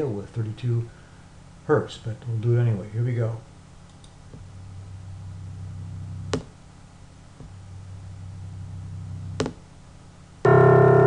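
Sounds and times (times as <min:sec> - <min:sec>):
faint low hum tone: 0:00.0 - 0:11.0
click: 0:03.9 - 0:04.2.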